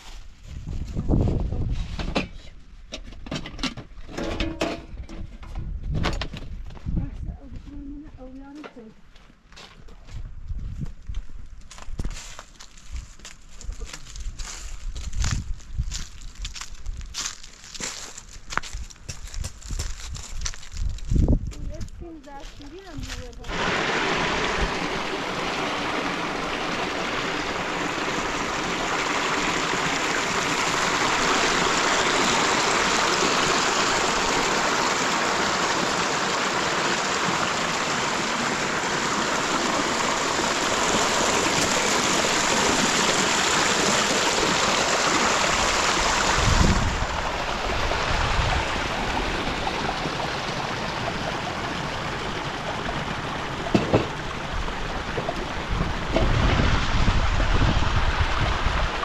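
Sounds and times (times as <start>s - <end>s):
water rushing: 23.5s - 59.0s.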